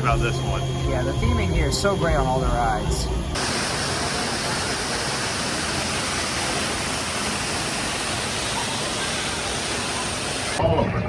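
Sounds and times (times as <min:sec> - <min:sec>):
steady rushing noise: 0:00.0 - 0:10.9.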